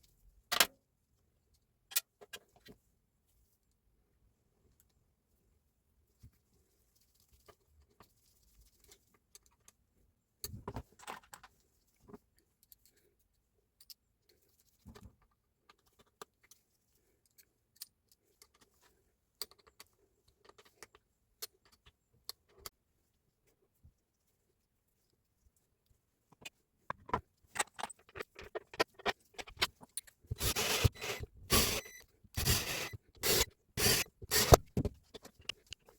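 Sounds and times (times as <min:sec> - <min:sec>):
small parts and tools clicking: 0:01.9 - 0:02.7, 0:10.4 - 0:22.8, 0:26.3 - 0:35.9.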